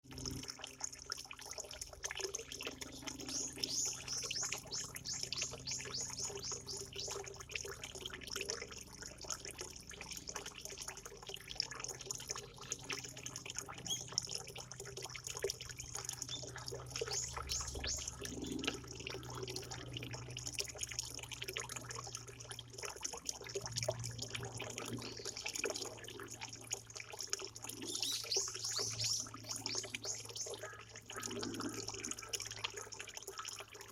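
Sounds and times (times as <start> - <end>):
water trickling and dripping: 0.0 - 33.9
small birds chirping: 2.8 - 7.2, 15.8 - 18.7, 24.9 - 25.9, 27.7 - 31.4.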